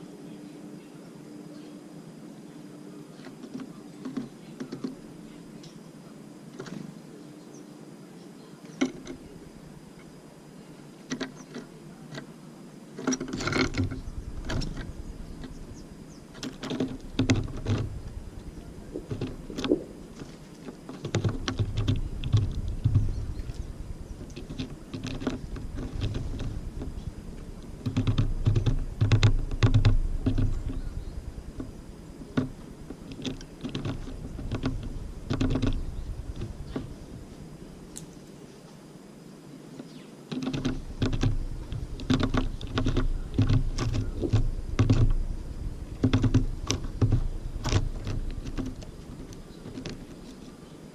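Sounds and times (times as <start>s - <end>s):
birds pecking at feeder: 2.4s - 38.8s, 39.7s - 50.9s
low rumbling knocks: 13.6s - 37.8s, 40.5s - 50.2s.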